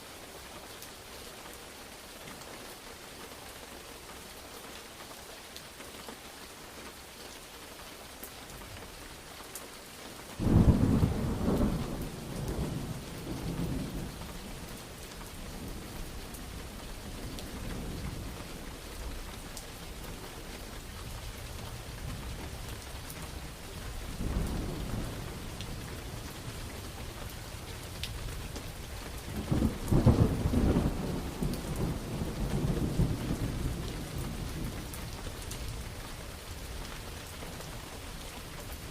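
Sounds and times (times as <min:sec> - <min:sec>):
steady rain: 0:00.0 - 0:38.9
thunder rumbling: 0:10.4 - 0:18.5, 0:23.4 - 0:35.2.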